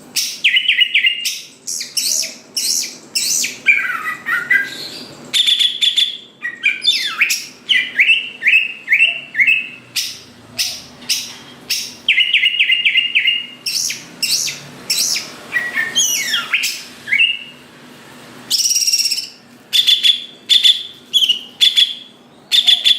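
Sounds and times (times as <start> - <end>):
bird singing chirps and whistles: 0.1 - 17.6, 18.5 - 22.9.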